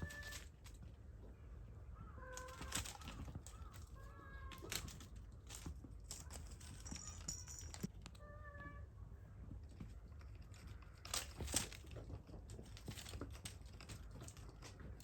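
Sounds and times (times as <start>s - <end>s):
kittens moving about: 0.0s - 1.4s, 2.1s - 15.0s
kittens mewing: 2.0s - 5.1s.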